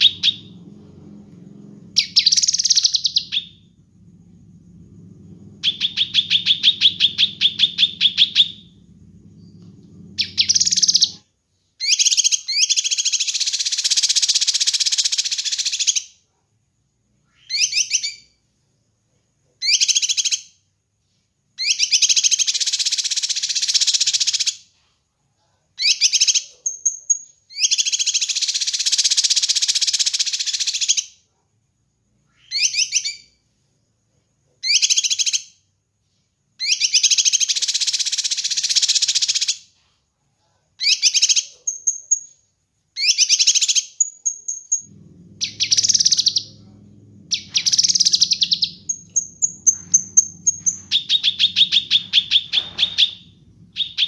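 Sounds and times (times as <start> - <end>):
low hum: 0.0 - 11.1, 44.8 - 54.0
songbird trilling and chattering: 5.6 - 8.7, 10.2 - 11.2, 43.0 - 54.0.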